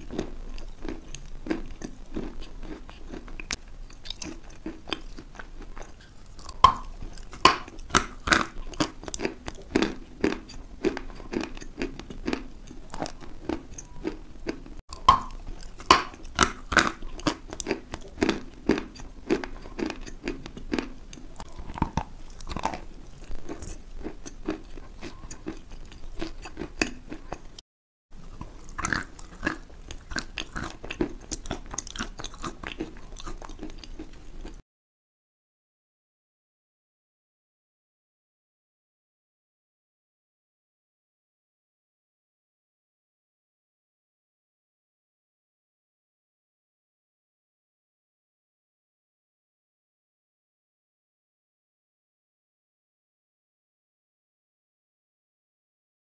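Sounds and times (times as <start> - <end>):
crunchy chewing: 0.0 - 27.6, 28.2 - 34.6.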